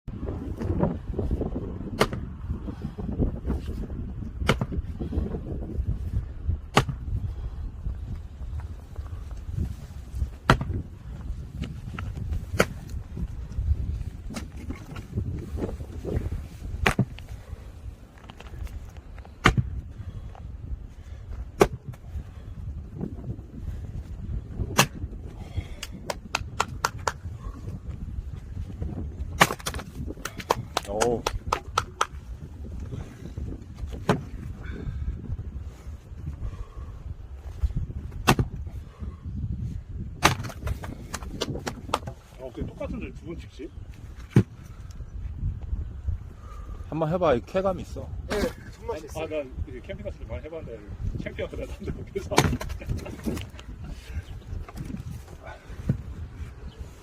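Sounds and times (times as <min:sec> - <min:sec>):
axe splitting firewood: 0:01.9 - 0:02.3, 0:04.4 - 0:04.8, 0:06.7 - 0:07.1, 0:10.4 - 0:10.8, 0:12.0 - 0:13.0, 0:16.8 - 0:17.2, 0:19.2 - 0:19.8, 0:21.6 - 0:21.9, 0:24.6 - 0:25.1, 0:29.3 - 0:32.2, 0:34.0 - 0:34.3, 0:38.1 - 0:38.6, 0:40.2 - 0:42.3, 0:52.2 - 0:53.6.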